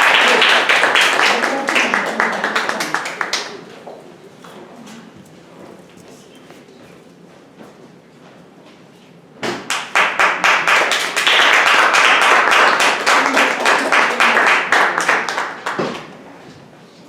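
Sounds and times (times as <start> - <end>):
audience applauding: 0.0 - 3.9, 9.7 - 16.2.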